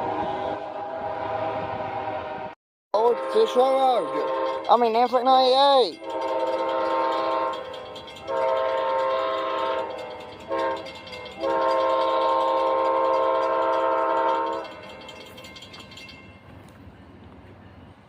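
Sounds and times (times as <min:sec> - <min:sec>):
locomotive horn blasts: 0:00.0 - 0:04.8, 0:06.0 - 0:14.8
train rumble: 0:00.0 - 0:18.0.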